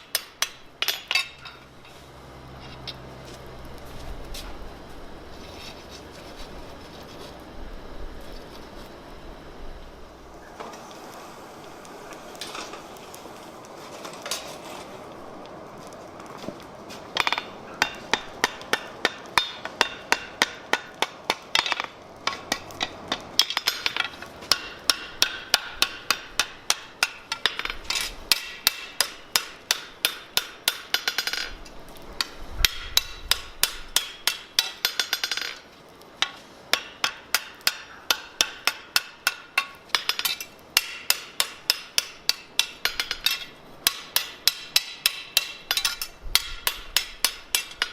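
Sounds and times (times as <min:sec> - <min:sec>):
hammer striking steel on anvil: 0:00.0 - 0:01.6, 0:17.2 - 0:31.5, 0:32.2 - 0:35.6, 0:36.2 - 0:47.9.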